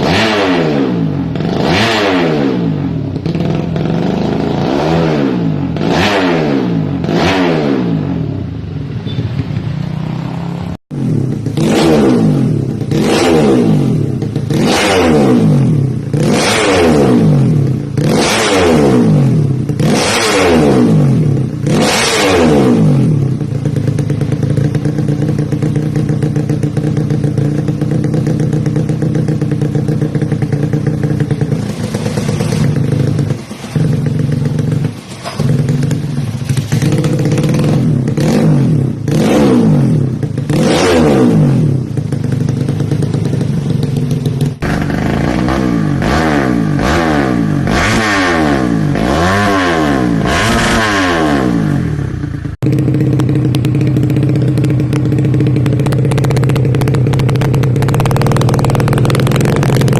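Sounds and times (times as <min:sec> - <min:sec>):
motorcycle engine revving and idling: 0:00.0 - 0:59.9.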